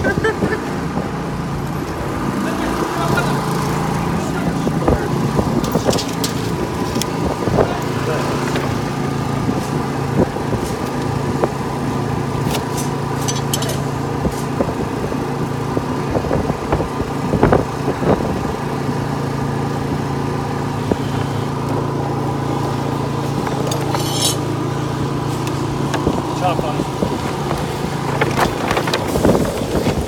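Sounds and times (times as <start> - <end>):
engine running: 0.0 - 30.0
short metallic rattle: 12.7 - 14.5, 23.2 - 24.6.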